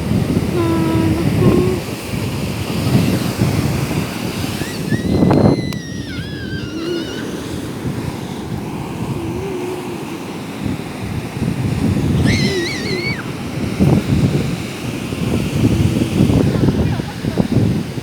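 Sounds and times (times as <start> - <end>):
waves washing on shore: 0.0 - 18.0
wind buffeting microphone: 0.0 - 18.0
high wavering cry: 0.5 - 1.9, 4.6 - 7.6, 12.2 - 13.3.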